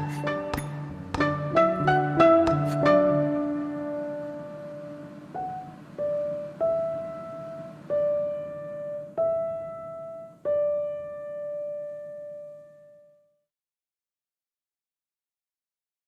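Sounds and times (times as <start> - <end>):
slow piano notes: 0.0 - 13.3.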